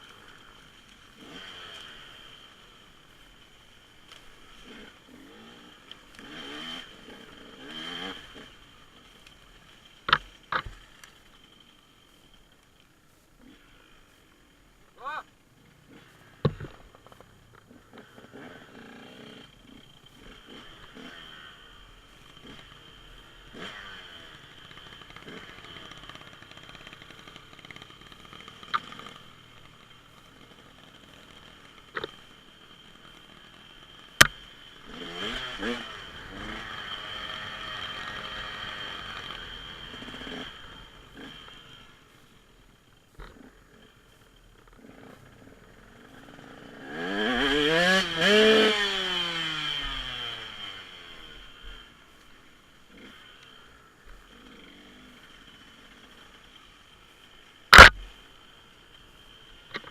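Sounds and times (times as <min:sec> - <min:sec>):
distant dirt bike engine: 0:00.0 - 0:59.9
sharp click: 0:57.7 - 0:58.1.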